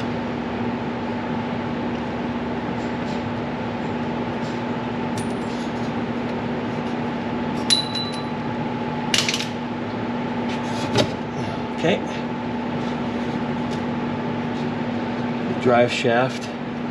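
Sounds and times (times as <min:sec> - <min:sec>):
steady background hum: 0:00.0 - 0:16.9
metal tools clinking: 0:07.7 - 0:08.3.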